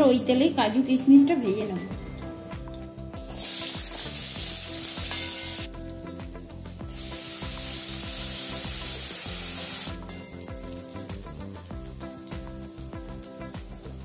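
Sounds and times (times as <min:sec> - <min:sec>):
nuts sizzling in hot oil: 0:03.3 - 0:14.0.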